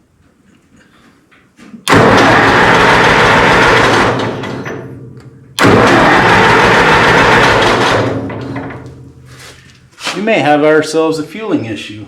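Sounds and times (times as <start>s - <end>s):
tractor engine cranking: 1.8s - 10.0s.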